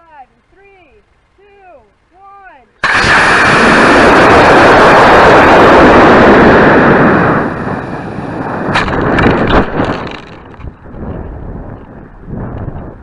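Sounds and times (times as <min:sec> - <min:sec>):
rocket motor exhaust rushing: 0:02.8 - 0:13.0
sharp cracks: 0:02.8 - 0:13.0.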